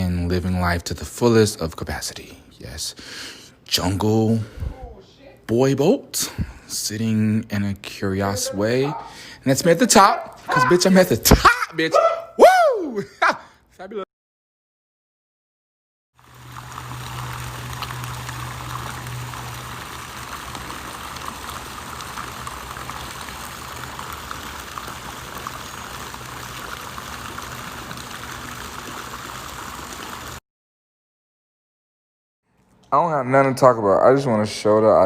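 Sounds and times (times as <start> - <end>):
low steady hum: 16.2 - 30.0
running water rushing: 16.2 - 30.4.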